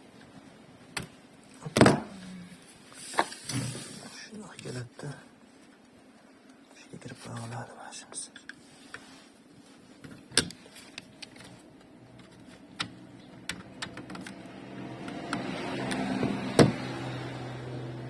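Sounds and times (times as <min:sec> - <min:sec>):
sharp clicks and knocks: 0:10.3 - 0:14.4
sunroof motor whirring: 0:13.4 - 0:18.0.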